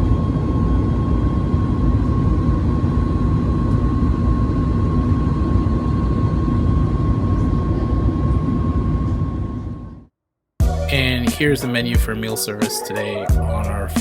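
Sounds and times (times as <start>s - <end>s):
jet engine rumble in cabin: 0.0s - 10.1s
steady engine whine: 0.0s - 14.0s.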